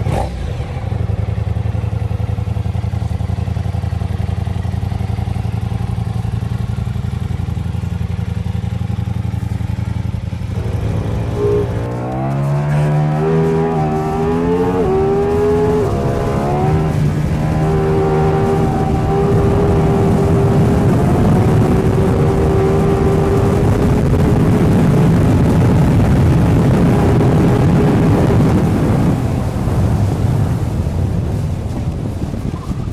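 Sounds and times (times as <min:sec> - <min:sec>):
motorcycle engine revving: 0:00.0 - 0:32.9
rush of noise: 0:09.4 - 0:32.9.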